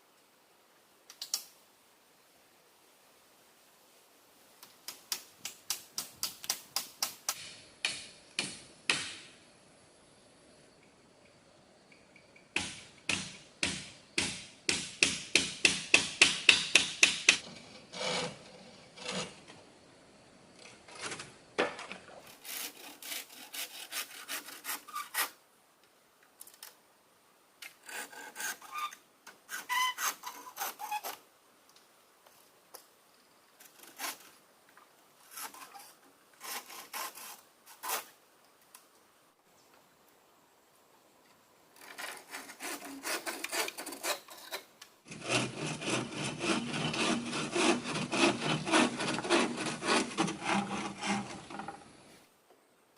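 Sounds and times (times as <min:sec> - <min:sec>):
wood being sawn by hand: 0:17.3 - 0:19.4, 0:22.3 - 0:25.3, 0:27.8 - 0:28.8, 0:35.3 - 0:38.1, 0:41.8 - 0:51.9.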